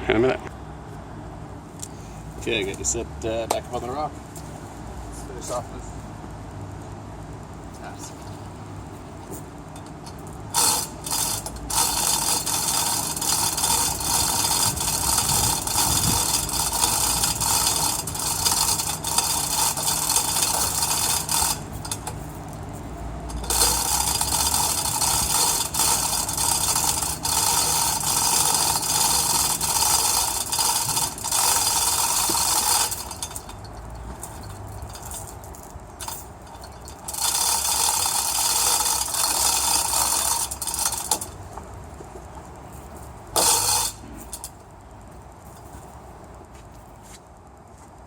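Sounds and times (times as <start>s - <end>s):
chain hoist ratchet clicking: 9.8s - 41.4s, 43.3s - 44.7s.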